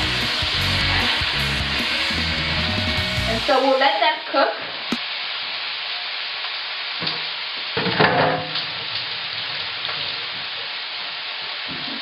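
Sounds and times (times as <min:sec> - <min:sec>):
chicken sizzling in hot oil: 0:00.0 - 0:12.0
wok clatter: 0:07.8 - 0:10.5.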